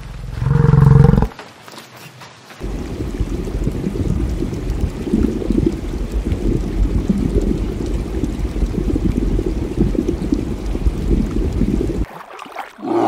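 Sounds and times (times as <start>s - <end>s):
muffled water churning and bubbling: 2.6s - 13.0s.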